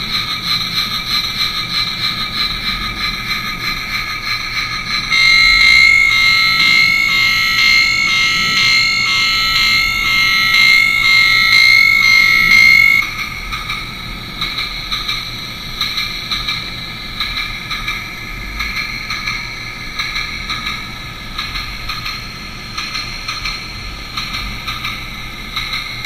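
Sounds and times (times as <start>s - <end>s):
electronic toy train sounds: 0.0s - 16.6s.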